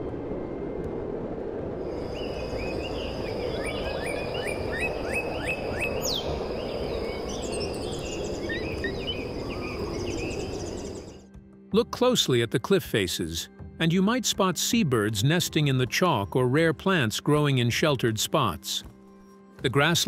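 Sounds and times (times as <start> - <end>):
rushing outdoor noise: 0.0 - 11.2
birds chirping: 2.0 - 11.2.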